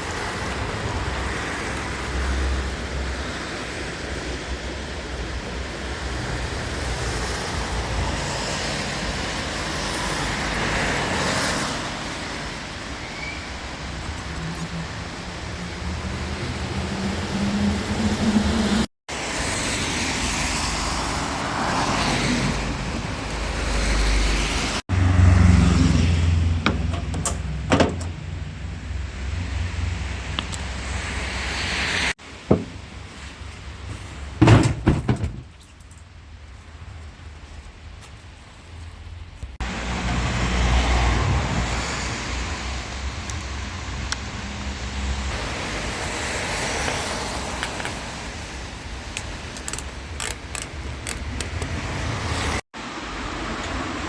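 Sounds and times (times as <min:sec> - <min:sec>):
vehicle engine rumble: 0:22.4 - 0:46.0
sharp knocks: 0:26.6 - 0:28.3, 0:32.5 - 0:33.0, 0:34.4 - 0:35.5.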